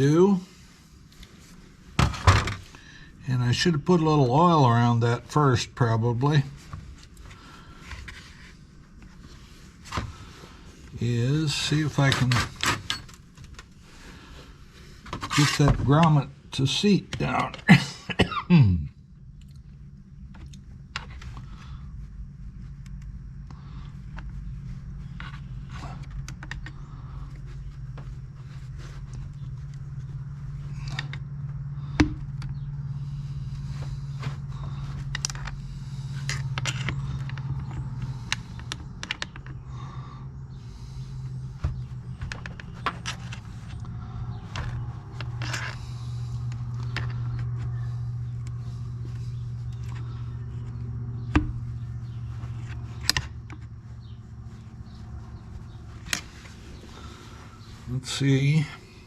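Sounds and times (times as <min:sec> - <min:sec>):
steady low hum: 0:00.0 - 0:59.0
hand tools clicking and scraping: 0:33.5 - 0:39.6.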